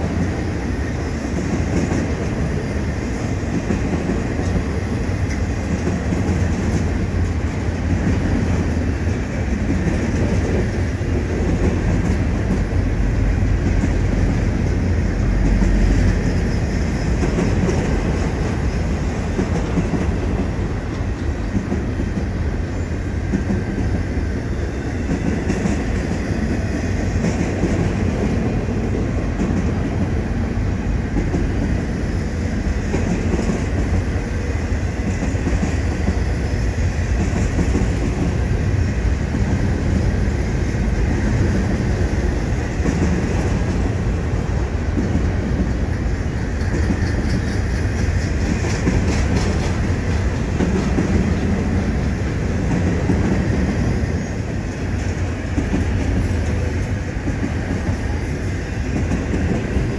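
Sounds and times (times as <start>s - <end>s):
freight train rolling past: 0.0s - 59.9s
rattling train cars: 0.0s - 59.9s.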